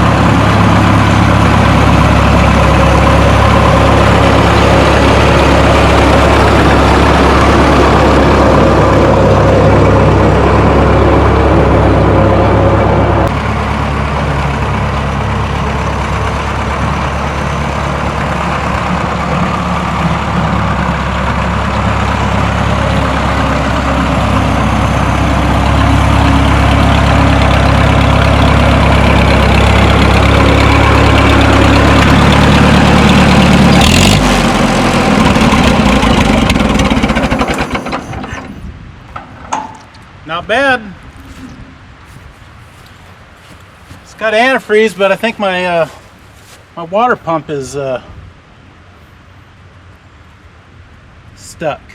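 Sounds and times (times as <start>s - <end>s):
tractor engine running: 0.0s - 47.5s.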